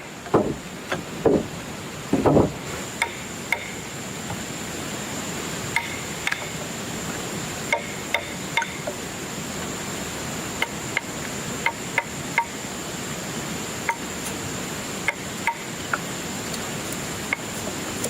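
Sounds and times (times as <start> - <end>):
hammer tapping: 2.2 - 3.8, 7.7 - 9.0
high-pitched insect drone: 3.0 - 16.5.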